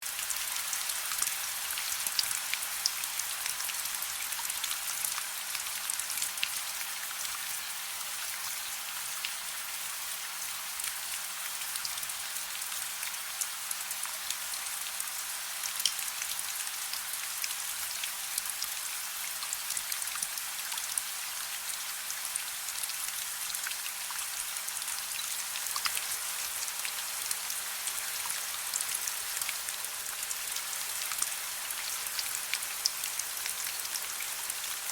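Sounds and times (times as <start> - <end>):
raindrops ticking on a surface: 22.7 - 34.9.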